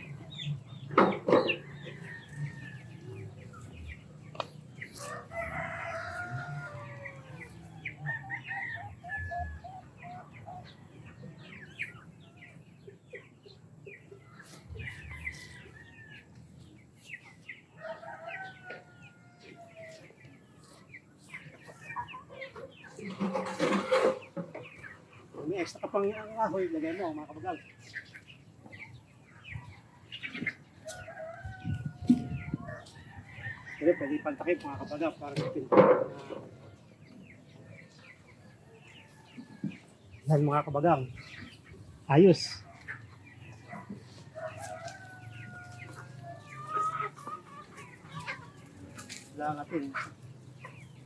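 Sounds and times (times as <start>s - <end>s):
chickens clucking: 0.0s - 51.0s
rooster crowing: 5.0s - 7.4s, 44.0s - 46.8s.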